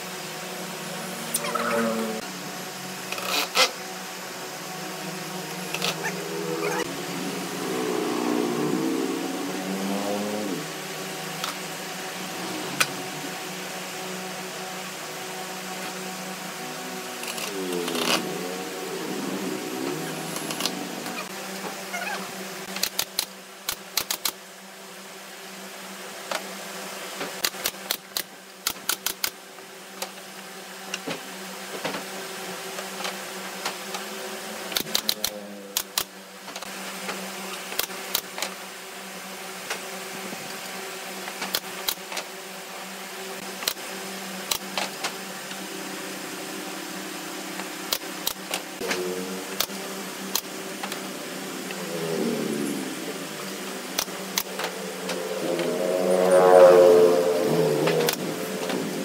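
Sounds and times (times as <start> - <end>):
steady low hum: 0.0 - 28.7, 29.4 - 59.0.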